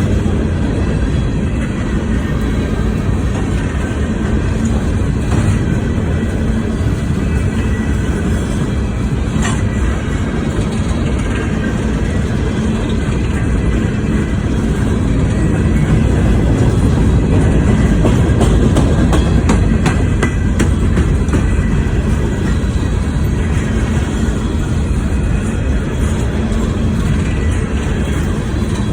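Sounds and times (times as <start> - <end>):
freight train cars rumbling: 0.0 - 28.9
wheels clicking over rail joints: 0.0 - 28.9.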